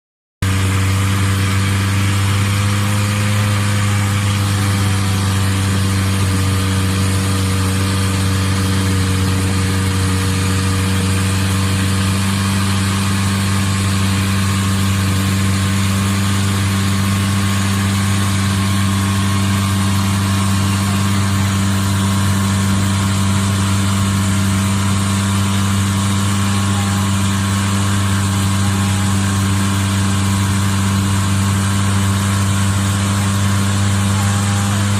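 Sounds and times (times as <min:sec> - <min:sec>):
boat engine humming: 0:00.4 - 0:34.9.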